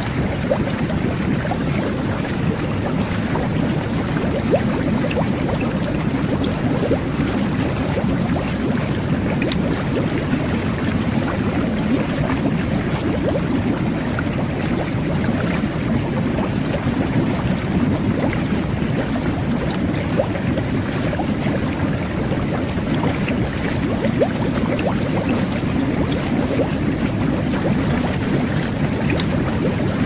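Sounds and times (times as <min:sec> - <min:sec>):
whirlpool jets bubbling water: 0:00.0 - 0:30.0.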